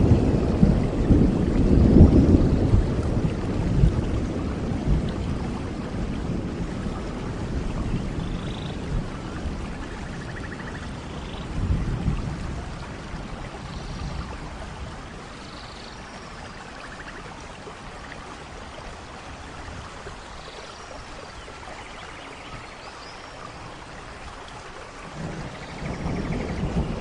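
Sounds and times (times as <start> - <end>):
low thunder rumble: 0.0 - 15.4, 25.0 - 27.0
steady rain: 0.0 - 27.0.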